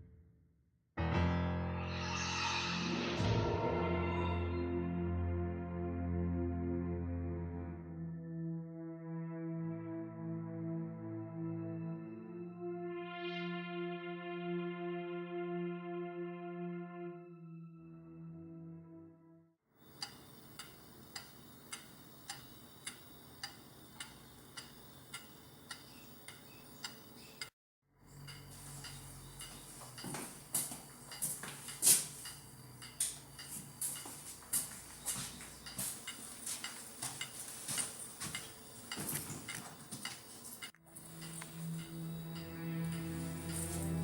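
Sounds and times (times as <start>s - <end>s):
clock ticking: 20.0s - 27.5s, 28.2s - 44.0s.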